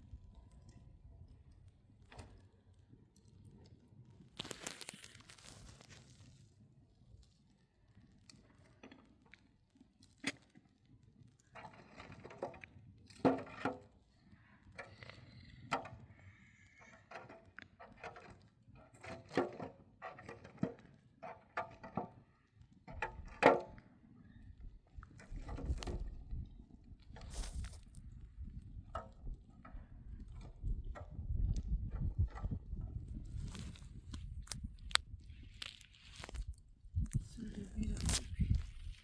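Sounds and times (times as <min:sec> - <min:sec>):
rustling: 0:04.3 - 0:06.5, 0:27.1 - 0:28.1, 0:33.2 - 0:39.0.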